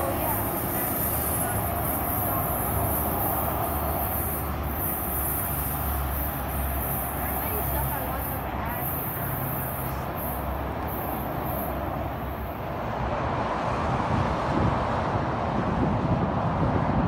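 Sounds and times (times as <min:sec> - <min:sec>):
high hiss: 0:00.0 - 0:13.0
diesel locomotive engine hum: 0:00.0 - 0:17.0.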